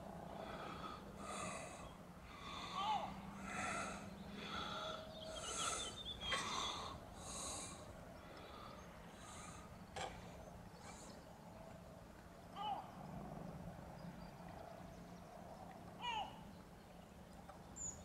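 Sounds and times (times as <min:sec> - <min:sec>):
birds hoarse calls: 0:00.3 - 0:11.3.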